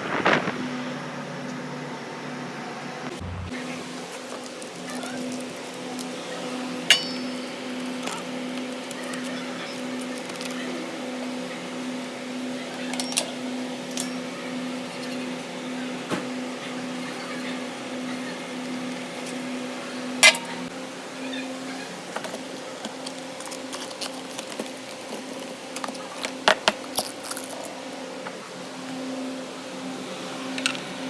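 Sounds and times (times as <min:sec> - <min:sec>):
pulsing mechanical hum: 0:00.0 - 0:31.0
sharp metallic clinks: 0:06.9 - 0:08.3.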